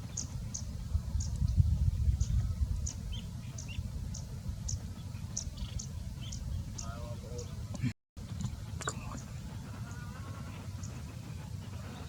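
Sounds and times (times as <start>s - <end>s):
bird chirping: 0.0s - 7.6s.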